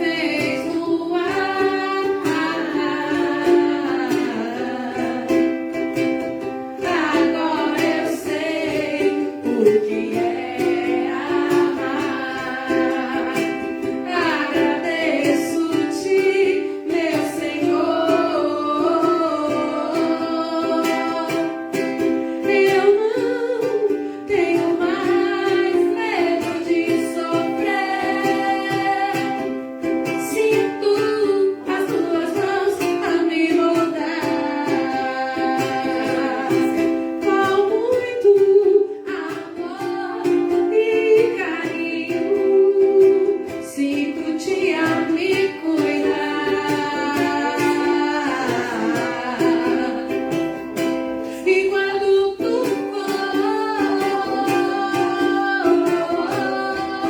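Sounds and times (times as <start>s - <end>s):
ukulele strumming: 0.0s - 57.0s.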